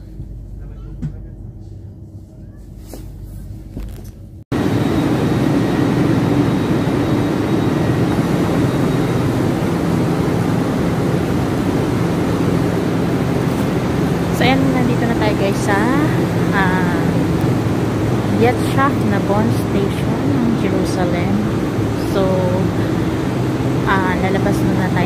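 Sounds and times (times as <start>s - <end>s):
low droning tones: 0.0s - 25.0s
moving train rumble: 0.0s - 25.0s
train rush and hum: 0.0s - 25.0s.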